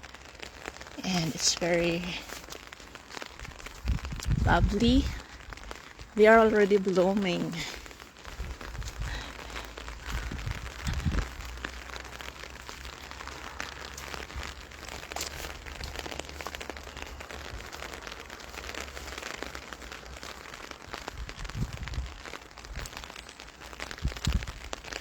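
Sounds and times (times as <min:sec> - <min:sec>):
rain pattering: 0:00.0 - 0:25.0
low bumps: 0:08.4 - 0:11.6.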